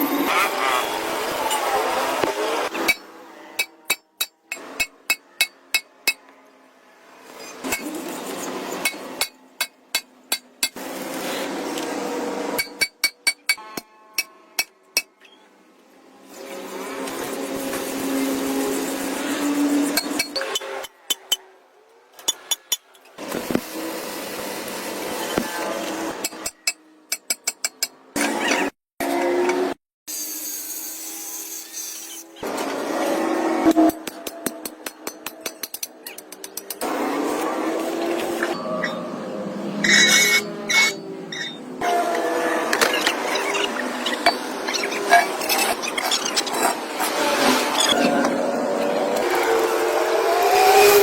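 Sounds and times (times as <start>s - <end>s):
hammer striking metal: 2.8s - 6.2s, 8.8s - 10.8s, 12.6s - 15.2s
metal tools tapping on metal: 12.6s - 15.1s, 26.2s - 28.0s.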